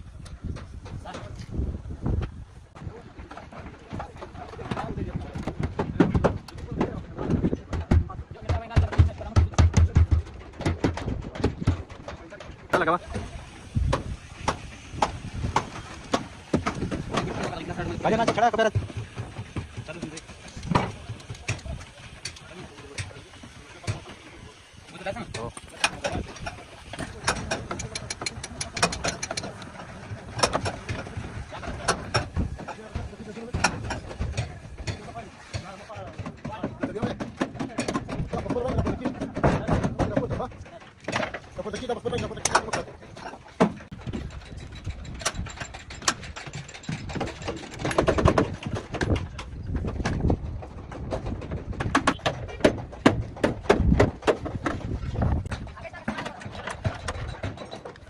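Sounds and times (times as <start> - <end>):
workshop tool knocks and clicks: 4.7 - 12.8, 25.3 - 29.7
sharp mechanical clicks and knocks: 24.9 - 43.0, 43.6 - 58.0.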